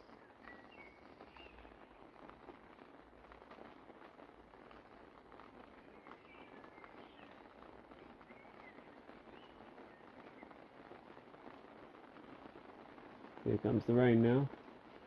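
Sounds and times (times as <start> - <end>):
light rain pattering: 0.0 - 15.0.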